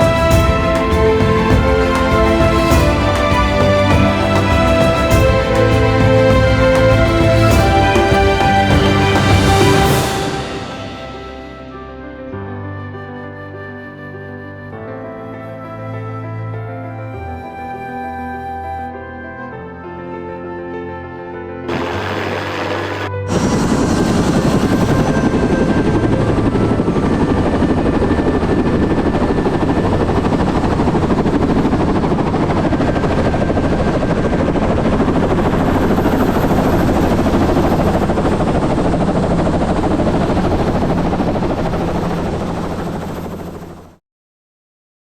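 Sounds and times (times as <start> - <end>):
helicopter rotor and engine: 21.7 - 44.0.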